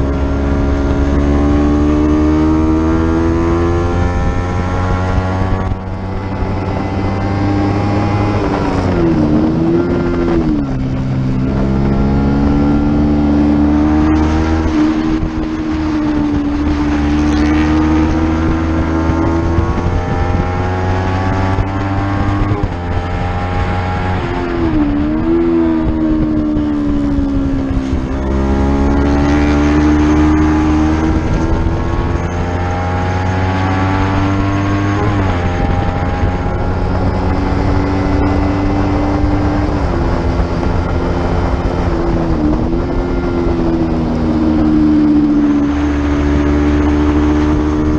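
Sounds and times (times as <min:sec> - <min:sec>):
motorcycle engine at high revs: 0:00.0 - 0:47.9.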